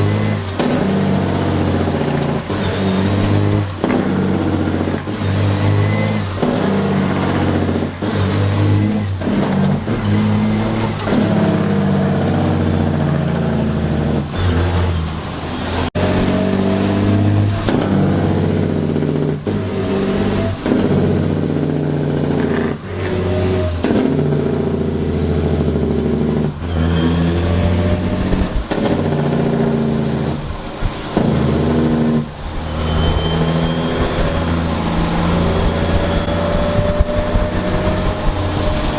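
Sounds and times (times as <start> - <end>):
diesel truck engines revving: 0.0 - 38.9.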